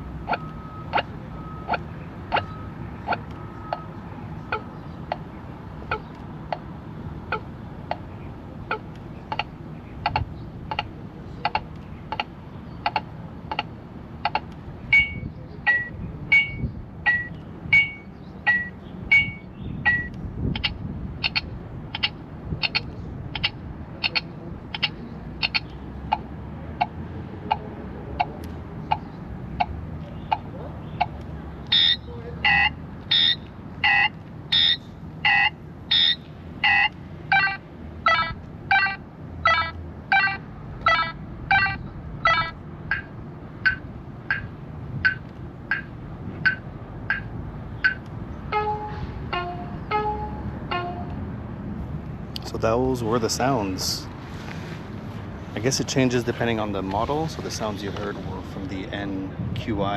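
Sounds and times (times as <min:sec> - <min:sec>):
alternating high and low beeps: 0:00.0 - 0:04.7, 0:14.3 - 0:22.1, 0:31.0 - 0:37.0, 0:42.9 - 0:48.8
scooter turn signal ticking: 0:12.9 - 0:21.4.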